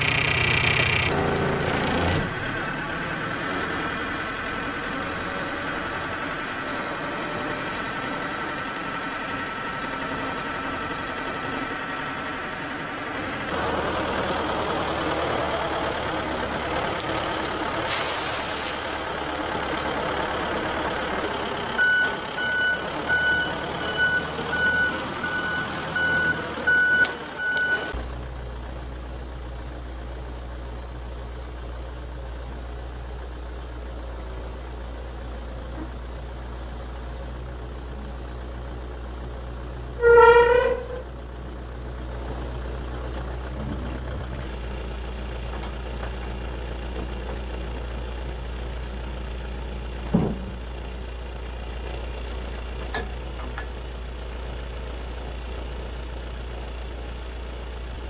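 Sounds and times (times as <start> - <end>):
backhoe engine running: 0.0 - 58.0
reversing alarm beeping: 21.8 - 28.0.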